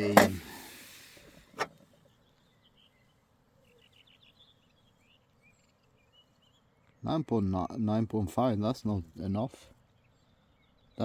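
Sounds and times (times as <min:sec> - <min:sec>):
faint bird chirps: 0:01.2 - 0:07.6.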